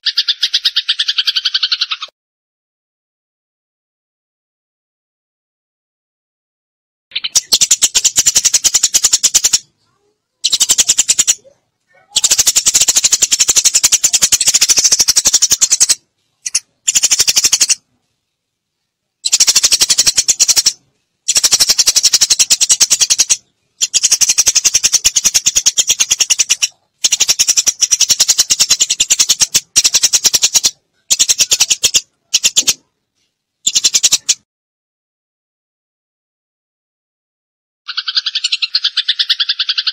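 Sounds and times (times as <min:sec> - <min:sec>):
sparrows chirping: 0:00.0 - 0:02.1, 0:07.1 - 0:17.8, 0:19.2 - 0:32.9, 0:33.6 - 0:34.4, 0:37.9 - 0:39.9.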